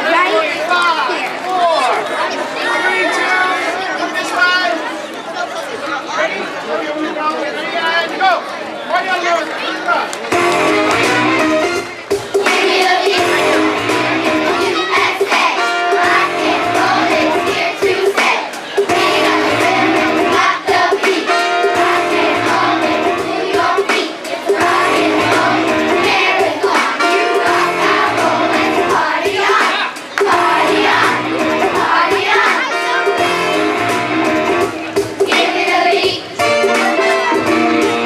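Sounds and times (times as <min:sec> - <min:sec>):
instrumental accompaniment: 0:10.3 - 0:38.0
children's chorus singing: 0:12.2 - 0:38.0.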